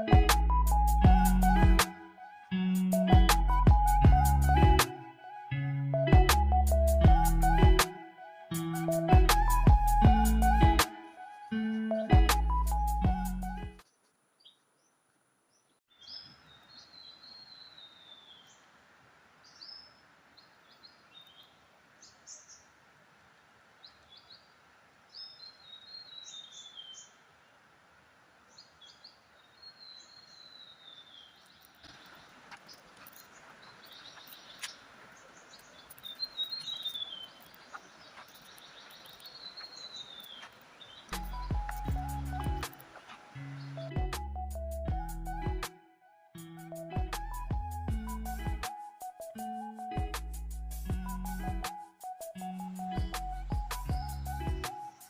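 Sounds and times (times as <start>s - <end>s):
bird chirps: 13.8s - 18.6s, 25.1s - 27.2s, 28.5s - 44.0s
faint steady hiss: 13.8s - 43.8s.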